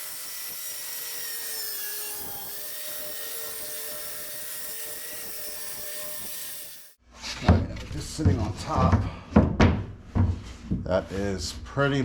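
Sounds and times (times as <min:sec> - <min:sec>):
electric saw cutting wood: 0:00.0 - 0:07.0.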